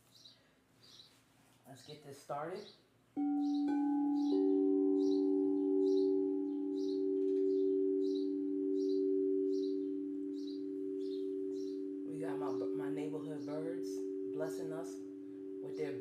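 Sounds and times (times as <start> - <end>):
songbird chirping: 0.0 - 16.0
singing bowls ringing: 3.2 - 16.0.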